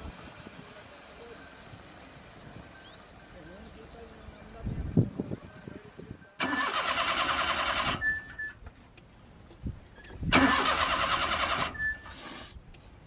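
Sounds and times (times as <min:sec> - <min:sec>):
car starter motor cranking: 0:06.4 - 0:08.6, 0:10.0 - 0:12.5.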